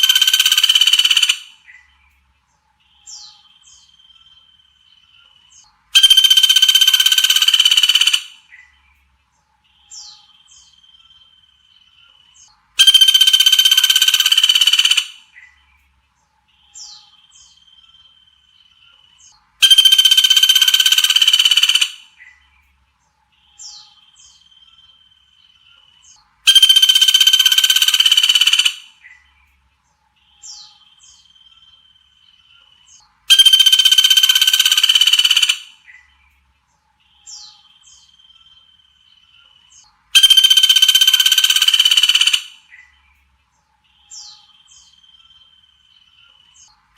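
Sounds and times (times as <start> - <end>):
harsh buzzy bird call: 0.0 - 1.9, 5.9 - 8.7, 12.8 - 15.6, 19.6 - 22.4, 26.1 - 29.2, 33.3 - 36.1, 39.7 - 42.9.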